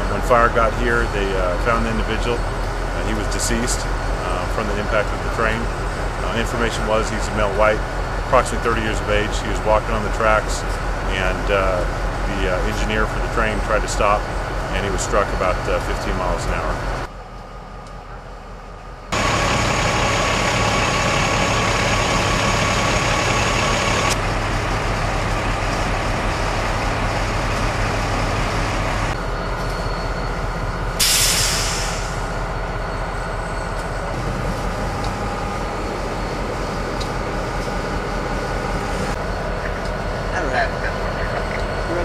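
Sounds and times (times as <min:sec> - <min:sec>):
steady whine: 0:00.0 - 0:42.0
train mechanical rumble: 0:00.0 - 0:42.0
loud burst of hissing: 0:31.0 - 0:32.3.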